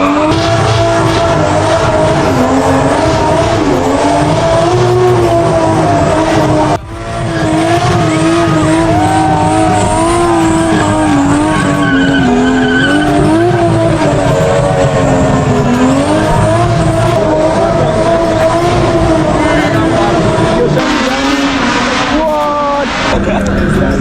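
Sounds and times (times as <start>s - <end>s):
car engine running: 0.0s - 24.0s
tyre squeal: 7.8s - 16.0s.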